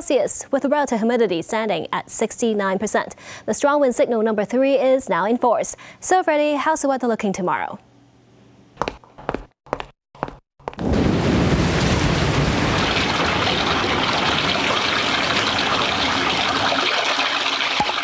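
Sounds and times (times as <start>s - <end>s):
wind-driven rain rushing: 10.8s - 17.4s.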